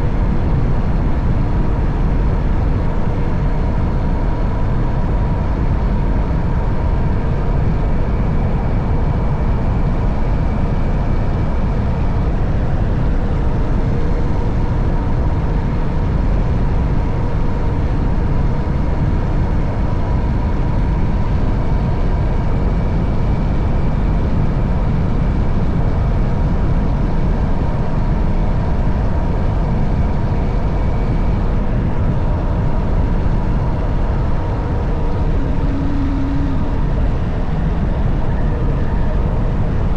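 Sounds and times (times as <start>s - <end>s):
wind rushing over microphone: 0.0s - 39.9s
motorcycle engine humming: 34.5s - 38.9s.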